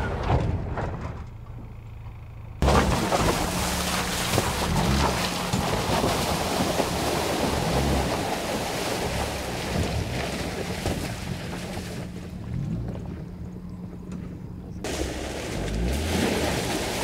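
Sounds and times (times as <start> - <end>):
truck engine running low: 0.0 - 17.0
tyres splashing in muddy water: 2.6 - 12.7, 14.8 - 17.0.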